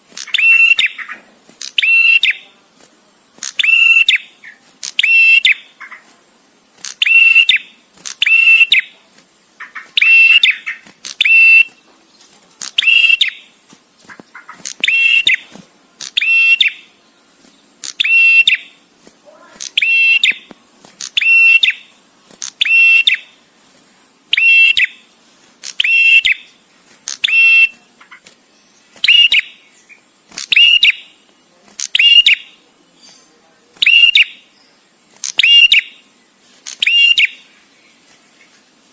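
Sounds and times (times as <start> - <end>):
bird calling high ringing chirps: 0.3 - 1.2, 1.8 - 2.4, 3.6 - 6.0, 7.0 - 8.9, 9.7 - 11.8, 12.8 - 13.5, 14.4 - 15.5, 16.1 - 17.0, 17.8 - 18.8, 19.7 - 20.5, 21.2 - 21.9, 22.6 - 23.3, 24.4 - 25.0, 25.8 - 26.5, 27.1 - 27.8, 29.0 - 31.2, 31.9 - 32.6, 35.3 - 36.0, 36.8 - 37.5.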